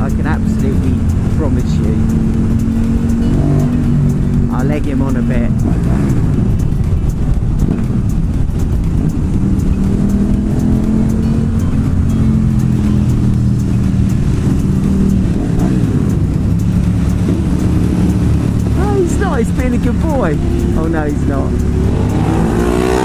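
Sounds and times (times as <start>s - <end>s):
motorcycle engines cruising in tunnel: 0.0s - 23.0s.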